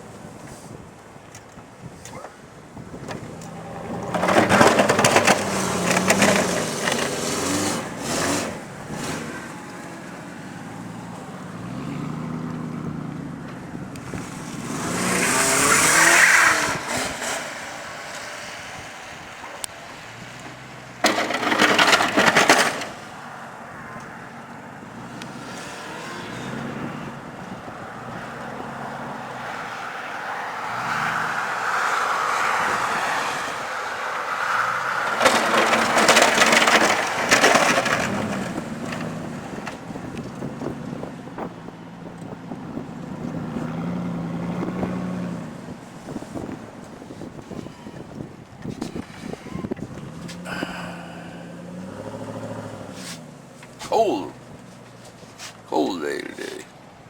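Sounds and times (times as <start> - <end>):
pickup truck engine revving: 2.8 - 19.3, 19.9 - 41.6, 49.2 - 54.6.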